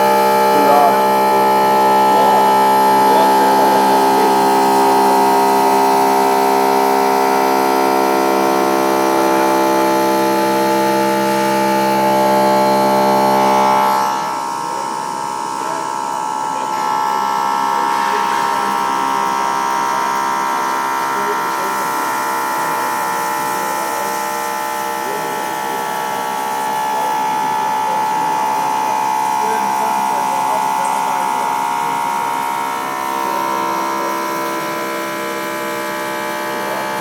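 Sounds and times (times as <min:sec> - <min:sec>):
machine whine: 0:00.0 - 0:37.0.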